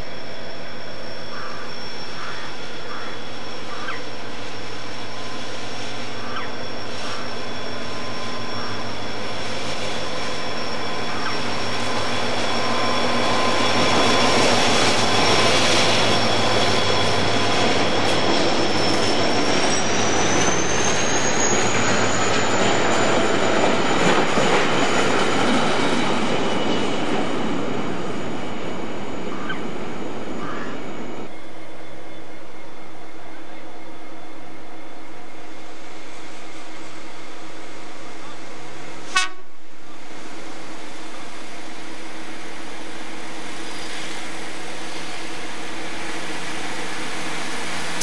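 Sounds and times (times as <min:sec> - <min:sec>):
thin high ringing tone: 0:00.0 - 0:23.0
diesel locomotive passing: 0:00.0 - 0:48.0.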